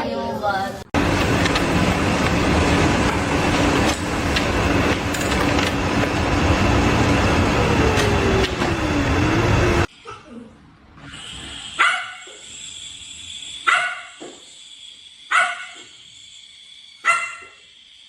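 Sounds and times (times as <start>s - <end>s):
loud noisy sound: 0.9s - 9.9s
dog barking: 11.8s - 12.4s, 13.6s - 14.2s, 15.3s - 15.9s, 17.0s - 17.6s.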